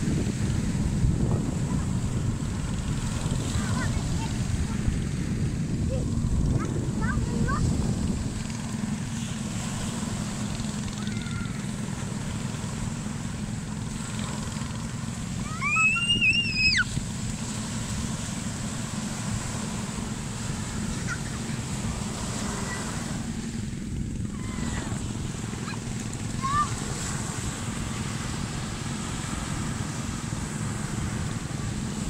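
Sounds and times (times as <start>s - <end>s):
ocean surf: 0.0s - 32.0s
child squealing: 11.0s - 11.7s, 15.4s - 16.9s, 24.3s - 24.9s.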